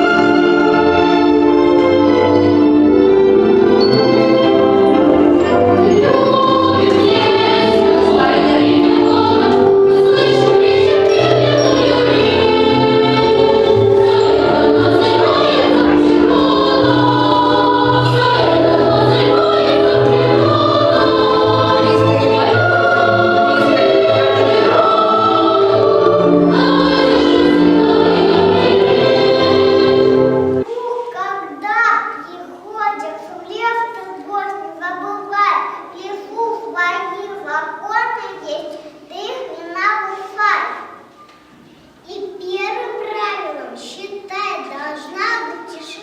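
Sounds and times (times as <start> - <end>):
choir singing long notes: 0.0 - 31.2
low musical accompaniment: 0.0 - 31.6.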